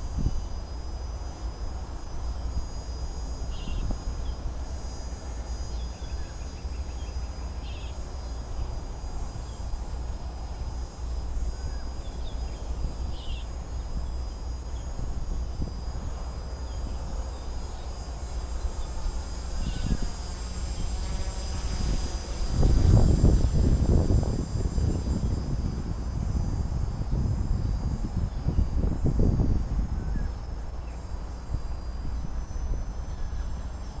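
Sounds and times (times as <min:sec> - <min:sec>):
faint high whine: 0:00.0 - 0:34.0
wind rumbling on microphone: 0:00.0 - 0:34.0
small birds chirping: 0:11.7 - 0:13.6.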